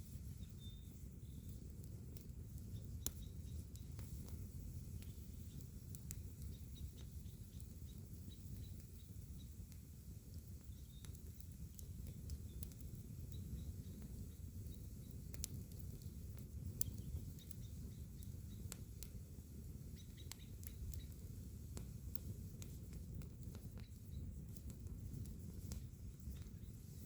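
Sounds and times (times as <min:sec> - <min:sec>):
campfire crackling: 0:00.0 - 0:27.0
faint high chirps: 0:00.3 - 0:01.6.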